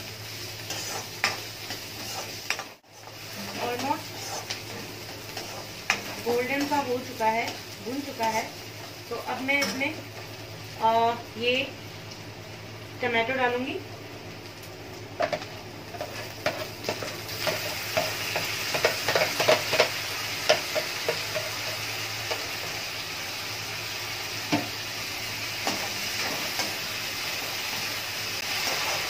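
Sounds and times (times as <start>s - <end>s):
tomatoes sizzling in oil: 0.0s - 29.0s.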